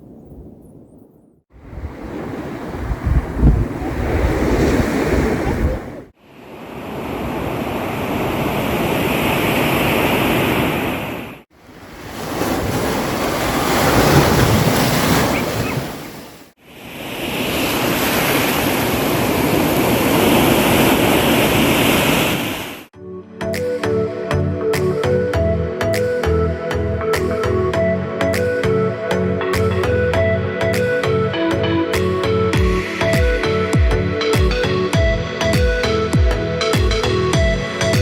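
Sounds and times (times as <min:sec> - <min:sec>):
waves breaking on shore: 0:01.5 - 0:22.9
music: 0:23.0 - 0:38.0.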